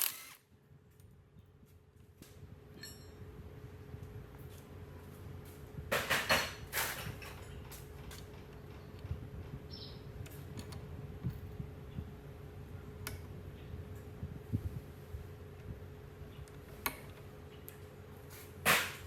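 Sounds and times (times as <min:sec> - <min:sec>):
knocks and clattering of parts: 0:05.9 - 0:09.6.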